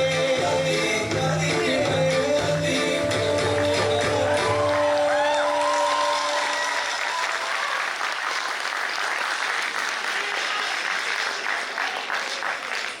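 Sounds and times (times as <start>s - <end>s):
audience clapping: 3.4s - 13.0s
audience cheering: 4.2s - 10.9s.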